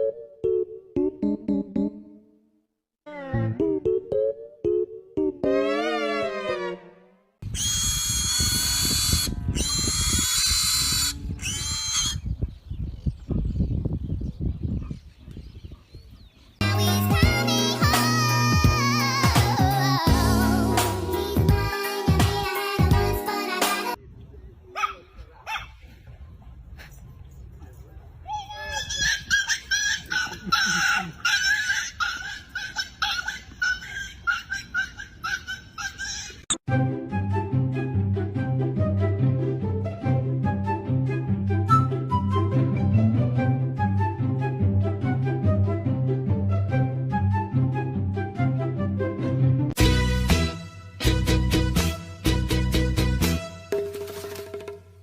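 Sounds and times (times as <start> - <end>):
bird shrill squawks: 7.6 - 12.3.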